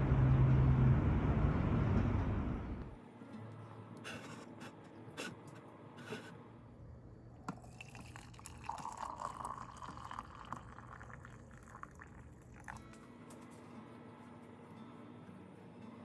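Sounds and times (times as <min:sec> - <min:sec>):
water dripping and running: 0:07.5 - 0:13.0.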